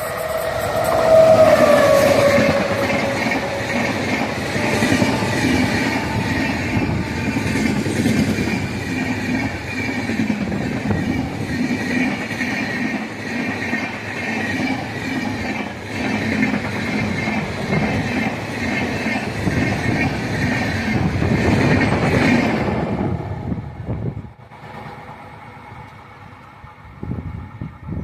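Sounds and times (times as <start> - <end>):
high wheel squeal: 0.0 - 12.0
train wheels clattering on rails: 0.0 - 23.4.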